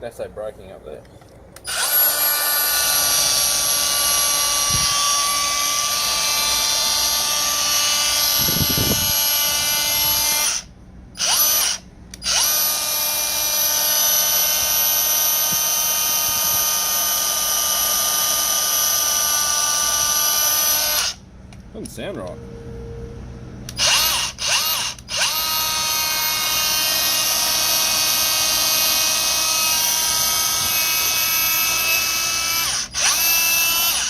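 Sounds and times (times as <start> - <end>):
angle grinder whining: 1.6 - 21.2, 23.7 - 34.0
person talking: 21.7 - 22.4.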